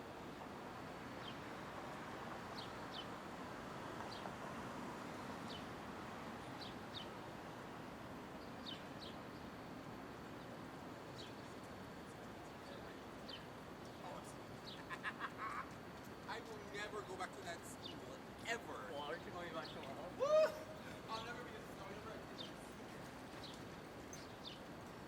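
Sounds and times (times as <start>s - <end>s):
city street noise: 0.0s - 25.0s.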